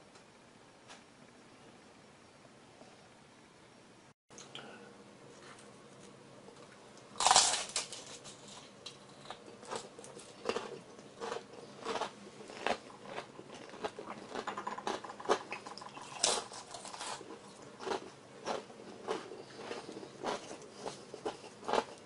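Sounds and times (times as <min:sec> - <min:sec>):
crunchy food being chewed: 0:05.4 - 0:22.0.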